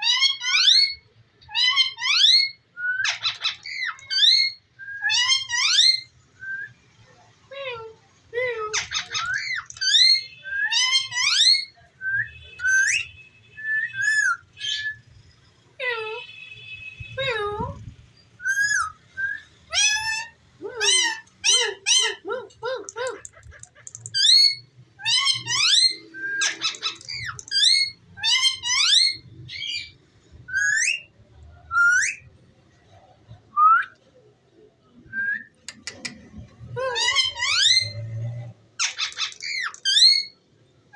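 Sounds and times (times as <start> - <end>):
parrot squawk: 0.0 - 6.1, 8.7 - 11.8, 19.7 - 30.0, 36.9 - 38.1, 38.8 - 40.4
parakeet whistling and chirping: 1.6 - 6.8, 8.8 - 15.1, 18.3 - 22.2, 23.4 - 32.3, 38.8 - 40.4.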